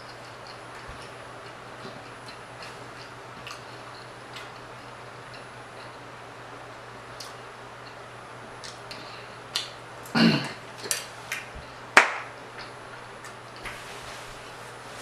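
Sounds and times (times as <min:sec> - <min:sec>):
wet mouth clicks and smacks chewing: 0:00.1 - 0:04.7.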